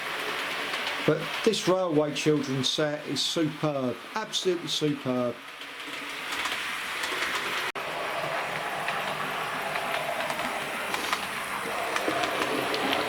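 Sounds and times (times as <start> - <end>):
faint clicks from rails: 0.1 - 1.4, 4.8 - 7.7, 8.5 - 13.0.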